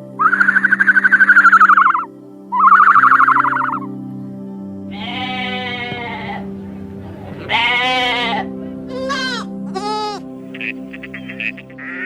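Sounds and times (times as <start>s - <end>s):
background music: 0.0s - 12.0s
animal bleating: 4.9s - 6.5s, 7.4s - 12.0s.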